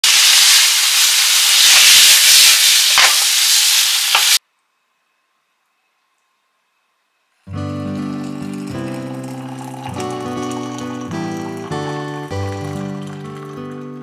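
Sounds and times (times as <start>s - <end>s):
food sizzling in a frying pan: 0.0s - 4.4s.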